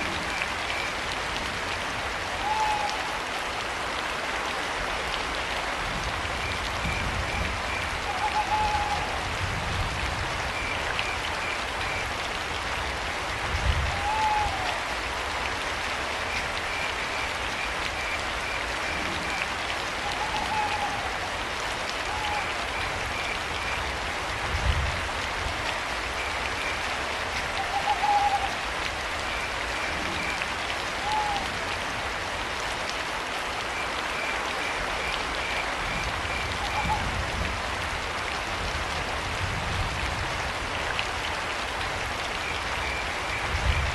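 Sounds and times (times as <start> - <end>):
steady rain: 0.0 - 43.9
owl hooting: 8.1 - 9.2, 27.6 - 28.6, 31.0 - 31.4.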